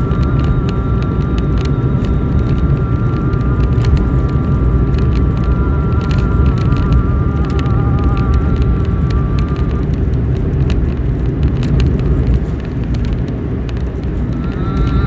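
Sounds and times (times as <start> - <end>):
wavering held tone: 0.0 - 10.1, 14.2 - 15.0
loud steady low rumble: 0.0 - 15.0.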